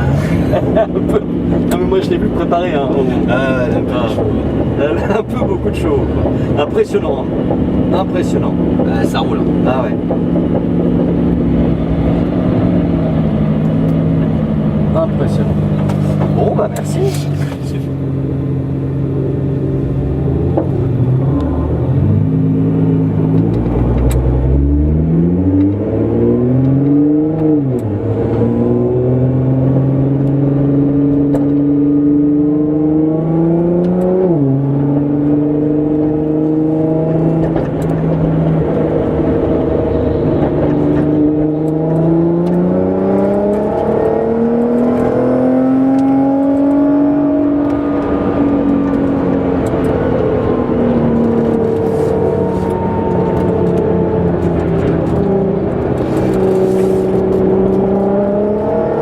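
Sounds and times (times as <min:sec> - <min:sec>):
car engine revving hard: 0:19.8 - 0:59.0.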